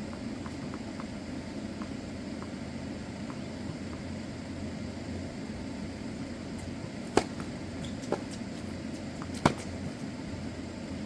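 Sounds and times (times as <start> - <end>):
low background hum: 0.0 - 11.0
racket striking tennis ball: 6.6 - 10.1
tennis ball bouncing on court: 6.6 - 10.1.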